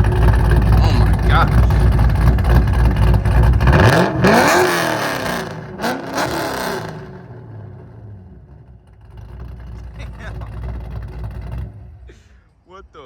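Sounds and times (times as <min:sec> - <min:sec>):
car engine revving past: 0:00.8 - 0:08.2.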